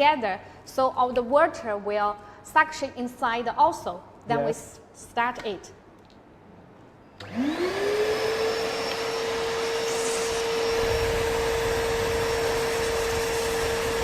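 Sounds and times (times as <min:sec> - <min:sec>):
vacuum cleaner motor whining: 0:07.2 - 0:14.0.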